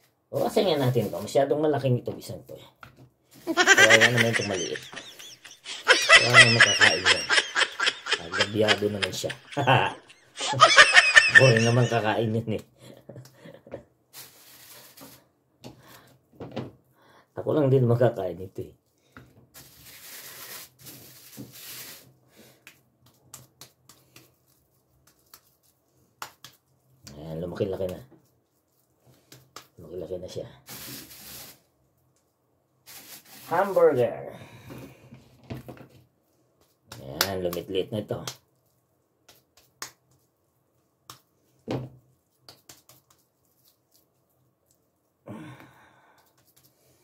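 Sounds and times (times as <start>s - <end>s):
soft rustle: 14.1s - 15.3s, 30.7s - 33.8s
hands slapping meat patty: 22.6s - 27.2s, 29.2s - 29.8s, 39.2s - 40.3s, 41.0s - 41.3s, 42.3s - 43.3s.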